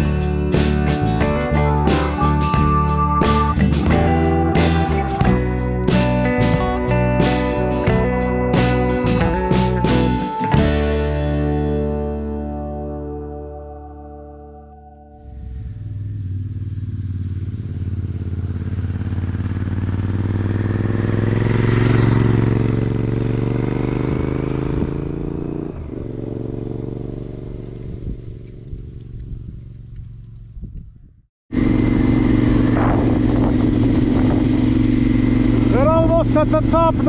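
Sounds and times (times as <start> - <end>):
motorcycle engine running: 0.0 - 12.8, 15.2 - 37.0.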